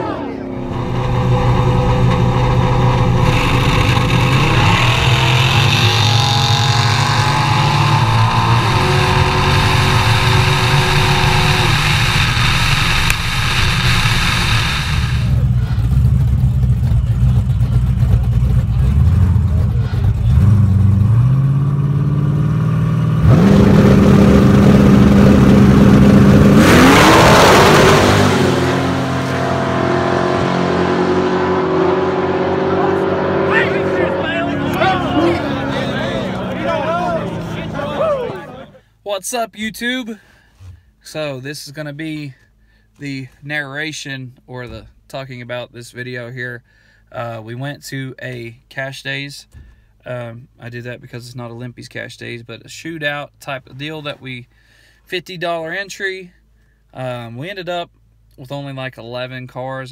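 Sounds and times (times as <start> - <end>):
drag car engines revving: 0.0 - 38.8.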